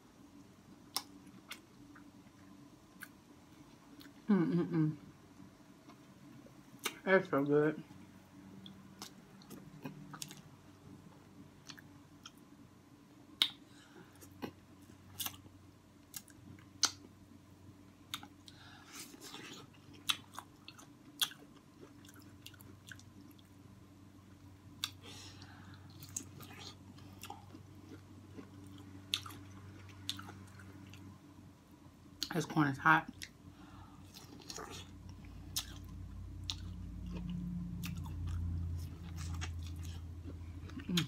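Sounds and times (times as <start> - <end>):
faint steady hum: 0.0 - 41.0
person chewing with lip smacks: 18.1 - 23.5, 34.0 - 41.0.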